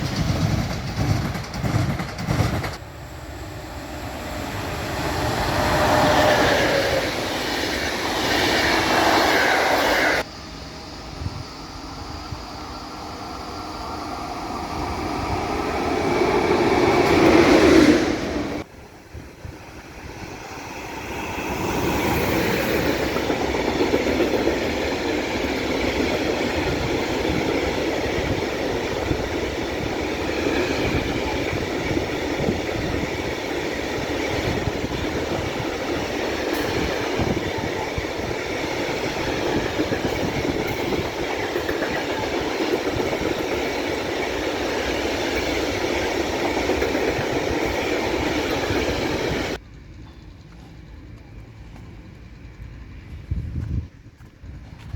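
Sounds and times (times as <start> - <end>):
passenger train passing: 0.0 - 54.9.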